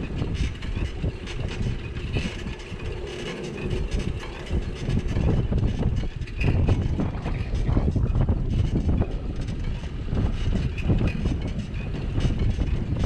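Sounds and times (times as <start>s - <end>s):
bicycle rattling: 0.0s - 13.0s
wind and road rumble: 0.0s - 13.0s.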